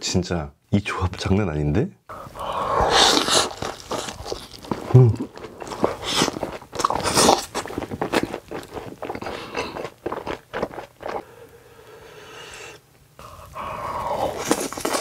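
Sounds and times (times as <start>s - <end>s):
person crunching and chewing: 2.4s - 11.6s, 12.6s - 15.0s.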